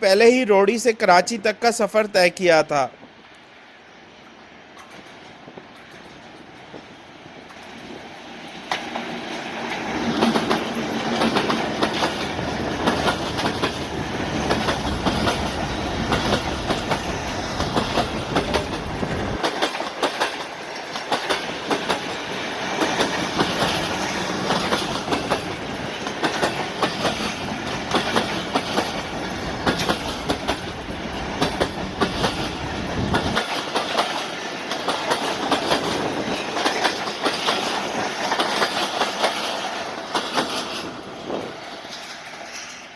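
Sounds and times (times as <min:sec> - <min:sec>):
deep train rumble: 0:04.0 - 0:42.9
train wheels clattering: 0:04.7 - 0:42.9.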